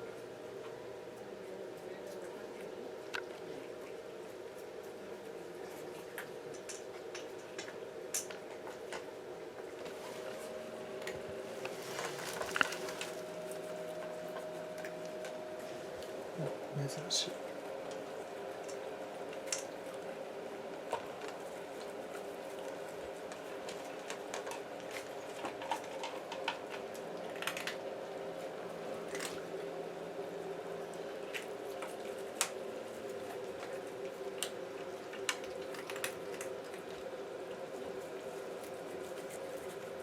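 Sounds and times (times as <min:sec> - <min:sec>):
cat chewing food: 0:00.1 - 0:16.7, 0:17.3 - 0:40.0
low hum: 0:07.6 - 0:22.3.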